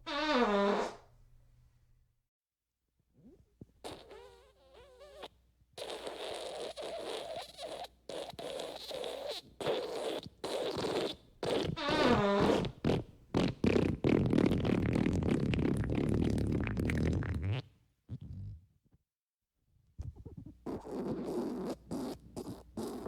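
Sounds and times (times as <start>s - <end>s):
fart sound effects: 0.1s - 1.0s, 3.8s - 18.6s.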